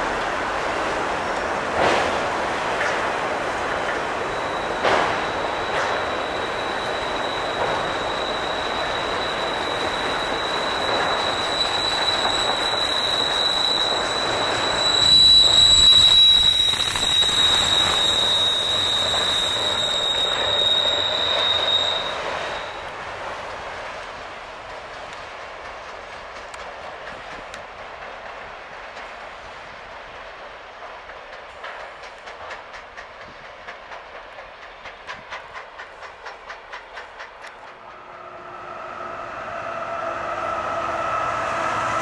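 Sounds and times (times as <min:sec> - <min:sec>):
train rumbling: 0:00.0 - 0:42.0
train wheel squeal: 0:03.7 - 0:23.6, 0:31.0 - 0:42.0.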